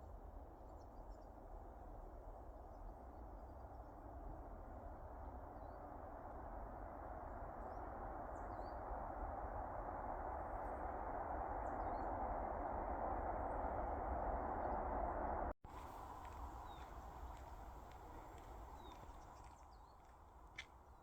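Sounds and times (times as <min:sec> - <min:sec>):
steady outdoor noise: 0:00.0 - 0:21.0
faint bird chirps: 0:15.8 - 0:20.2.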